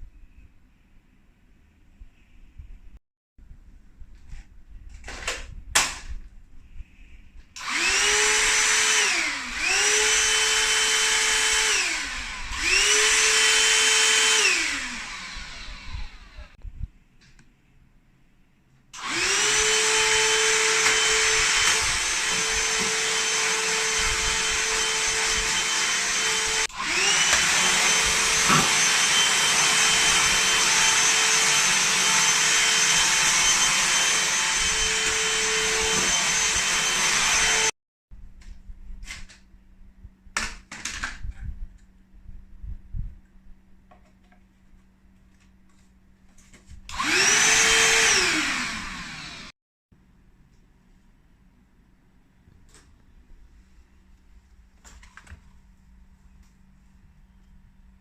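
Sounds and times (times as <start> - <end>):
hand vacuum cleaner whine: 7.6 - 16.6, 19.0 - 37.8, 46.9 - 49.5.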